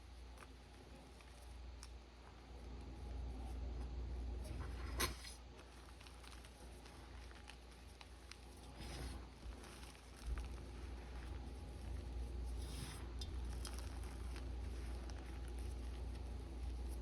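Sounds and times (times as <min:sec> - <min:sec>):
chalk crumbling by hand: 0:04.5 - 0:17.0.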